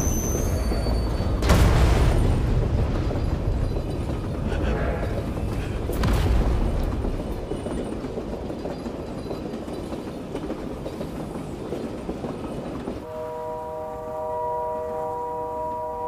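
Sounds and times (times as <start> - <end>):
train wheels clattering on rails: 0.0 - 13.1.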